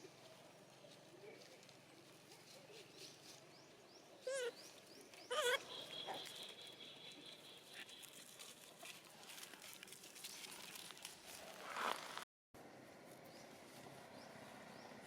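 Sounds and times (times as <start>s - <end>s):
baby monkey crying: 4.2s - 4.6s, 5.3s - 6.1s.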